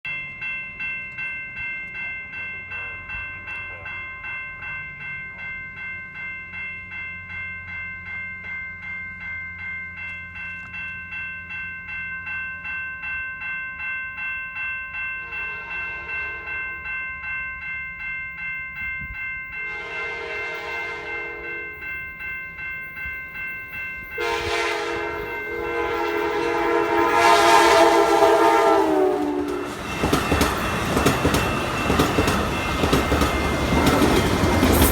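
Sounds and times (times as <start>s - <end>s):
bell ringing: 0.1s - 34.9s
train horn blasts: 15.2s - 16.6s, 19.7s - 21.8s, 24.2s - 29.8s.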